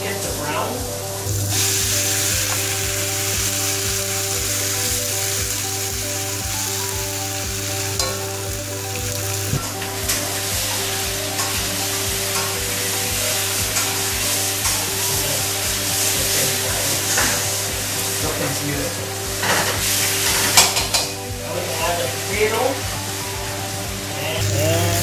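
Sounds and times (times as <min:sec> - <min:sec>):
music with steady beat: 0:00.7 - 0:25.0
chicken sizzling in a wok: 0:01.3 - 0:09.6, 0:10.3 - 0:18.2, 0:24.4 - 0:25.0.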